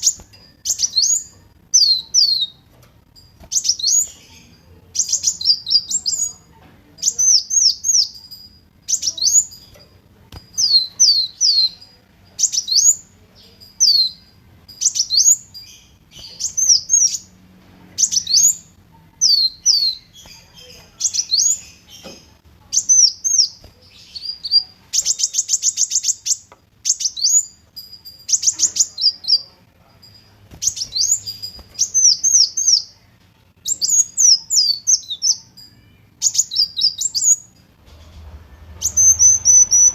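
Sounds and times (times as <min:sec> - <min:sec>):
bird chirping and trilling: 0:00.0 - 0:37.6, 0:38.6 - 0:39.9.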